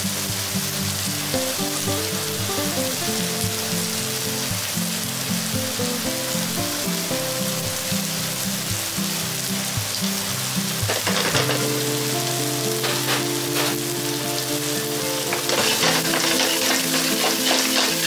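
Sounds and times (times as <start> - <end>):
pastes sizzling in oil: 0.0 - 18.0
wooden spatula scraping pan: 10.9 - 11.8, 12.8 - 13.9, 15.3 - 18.0.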